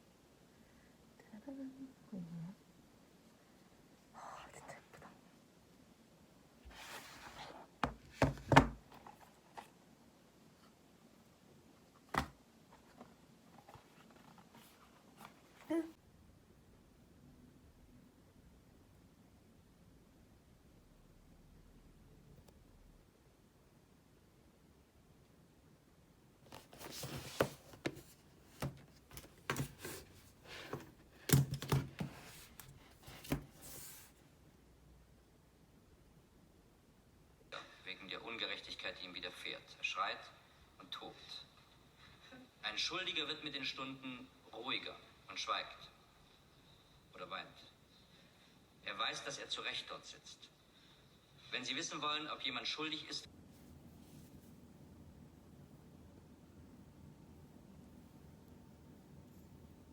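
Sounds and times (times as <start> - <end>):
items knocking on hard surface: 7.8 - 9.0
packaging rustling: 26.5 - 34.1
objects being handled: 26.5 - 34.2.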